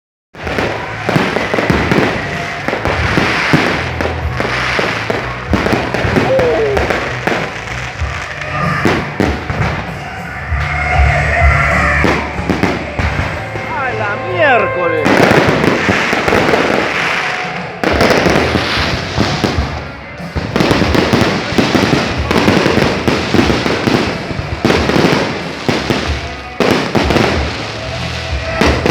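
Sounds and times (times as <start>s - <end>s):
fireworks bangs: 0.4s - 28.9s
fireworks crackling: 0.4s - 28.9s.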